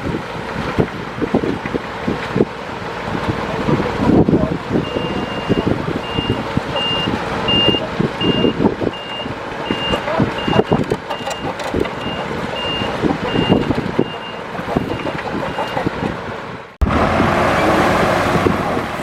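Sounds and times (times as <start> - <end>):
diesel engine noise: 0.0 - 19.0
reverse alarm beeping: 4.8 - 15.8.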